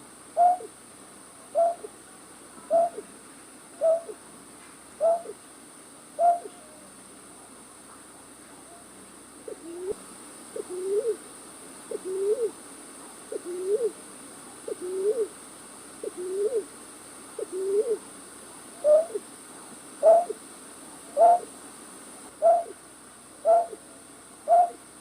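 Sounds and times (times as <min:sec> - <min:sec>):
low hooting bird call: 0:00.4 - 0:00.7, 0:01.6 - 0:01.9, 0:02.7 - 0:03.0, 0:03.8 - 0:04.2, 0:05.0 - 0:05.4, 0:06.2 - 0:06.8, 0:18.8 - 0:19.2, 0:20.0 - 0:20.4, 0:21.2 - 0:21.5, 0:22.4 - 0:22.8, 0:23.4 - 0:23.8, 0:24.5 - 0:24.8
higher bird call: 0:01.6 - 0:01.9, 0:02.7 - 0:03.0, 0:03.8 - 0:04.2, 0:05.0 - 0:05.4, 0:06.2 - 0:06.8, 0:18.8 - 0:19.2, 0:20.0 - 0:20.4, 0:21.2 - 0:21.5, 0:22.4 - 0:22.8, 0:23.4 - 0:23.8, 0:24.5 - 0:24.8.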